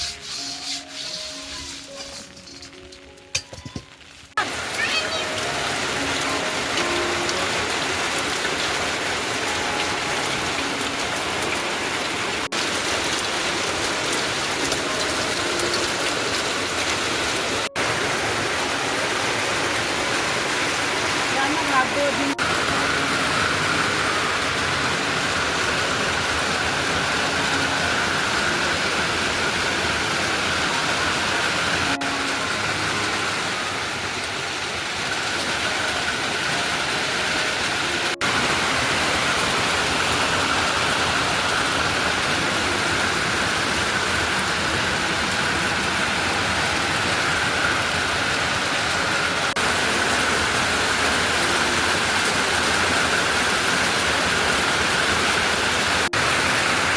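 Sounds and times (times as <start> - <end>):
rushing water: 0.0 - 56.9.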